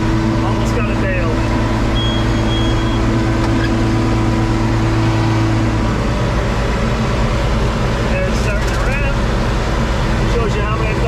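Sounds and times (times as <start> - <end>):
tractor diesel engine under load: 0.0 - 11.0
brief high tone: 2.0 - 3.0.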